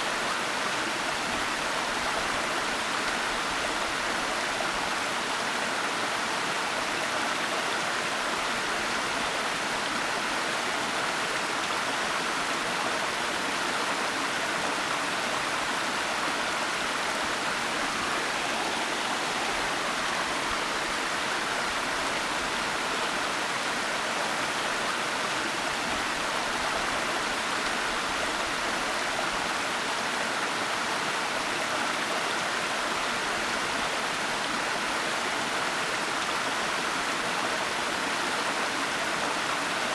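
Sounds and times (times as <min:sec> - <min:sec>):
waterfall rushing: 0:16.8 - 0:22.6.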